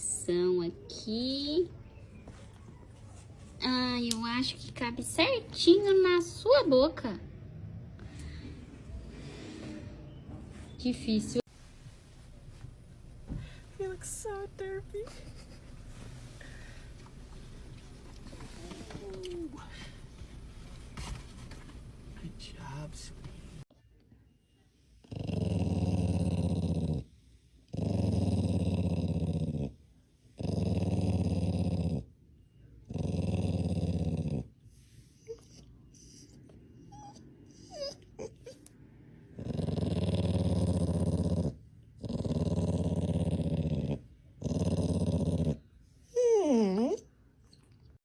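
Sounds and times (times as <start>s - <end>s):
dog growling: 25.0s - 27.1s, 27.7s - 29.8s, 30.4s - 32.1s, 32.8s - 34.6s, 39.3s - 47.1s
dog whimpering: 35.2s - 38.7s, 46.1s - 47.1s.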